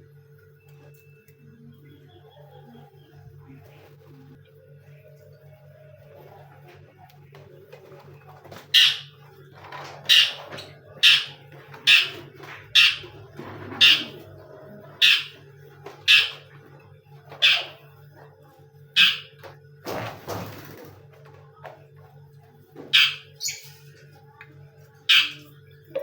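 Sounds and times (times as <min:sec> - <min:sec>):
bird calling harshly: 0:08.8 - 0:09.1, 0:11.0 - 0:12.2, 0:12.8 - 0:13.0, 0:13.8 - 0:14.2, 0:15.0 - 0:15.4, 0:16.1 - 0:16.4, 0:17.4 - 0:17.8, 0:19.0 - 0:19.3, 0:23.0 - 0:23.7, 0:25.1 - 0:25.5.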